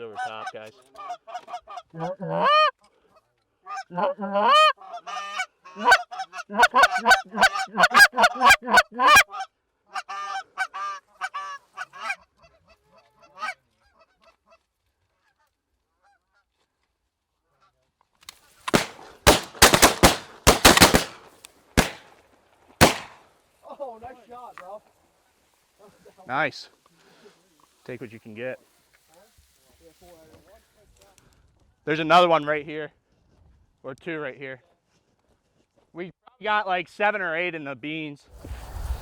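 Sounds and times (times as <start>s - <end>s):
geese honking: 1.0s - 2.7s, 3.7s - 9.2s
shotgun shots: 18.7s - 22.1s, 22.8s - 23.2s.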